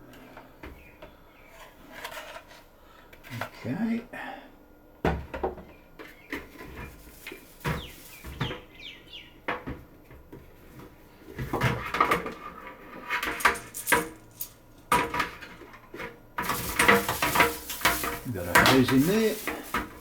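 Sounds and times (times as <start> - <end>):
plastic parts clicking and clattering: 11.5 - 20.0.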